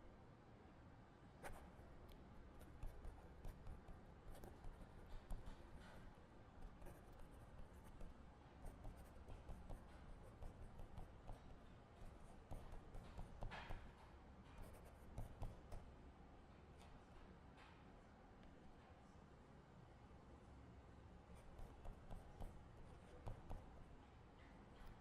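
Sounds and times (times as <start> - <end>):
low room hum: 0.0 - 25.0
pen scratching on paper: 2.6 - 6.0, 6.6 - 13.9, 14.6 - 15.8, 21.4 - 23.8.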